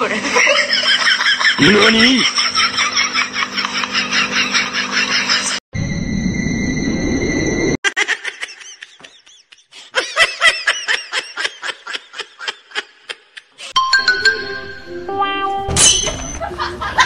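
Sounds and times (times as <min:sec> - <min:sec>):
music: 0:13.8 - 0:15.8.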